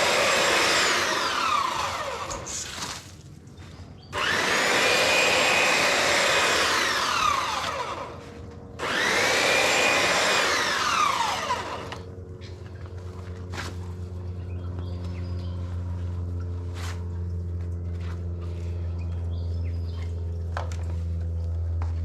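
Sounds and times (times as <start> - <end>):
chainsaw revving and idling: 0.0 - 2.5, 4.2 - 12.1.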